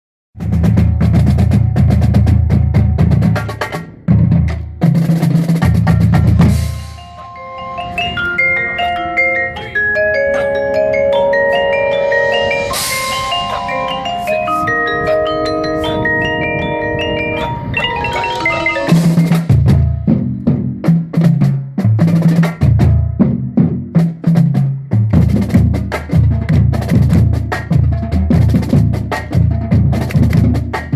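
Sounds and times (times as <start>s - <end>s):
fast drum strokes: 0.4s - 7.1s, 12.6s - 14.7s, 17.8s - 30.9s
mallet keyboards playing chords: 5.6s - 20.5s
cymbal crash: 12.6s - 13.6s.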